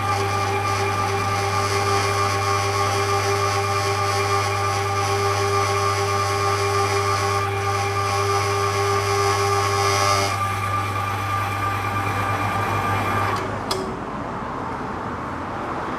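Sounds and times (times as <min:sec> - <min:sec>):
meat grinder motor humming: 0:00.0 - 0:13.5
short click: 0:13.4 - 0:13.9.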